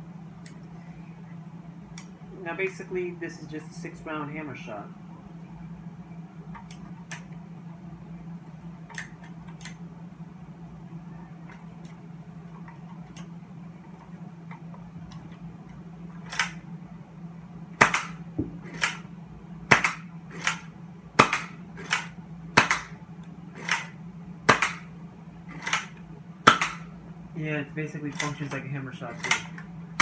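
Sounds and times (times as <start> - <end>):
steady low hum: 0.0 - 30.0
toy blaster hammer snapping: 16.3 - 16.6, 17.8 - 19.1, 19.7 - 23.0, 23.6 - 24.9, 25.5 - 26.9, 29.2 - 29.6.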